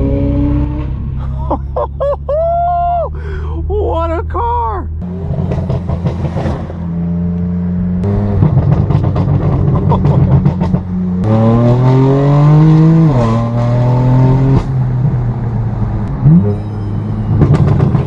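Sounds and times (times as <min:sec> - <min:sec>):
loud crackly car engine revving: 0:05.0 - 0:14.8.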